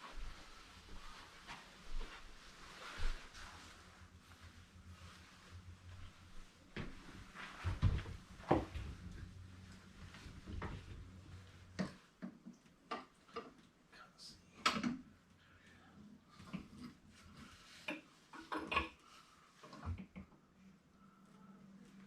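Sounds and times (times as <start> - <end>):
faint low hum: 19.2 - 22.0.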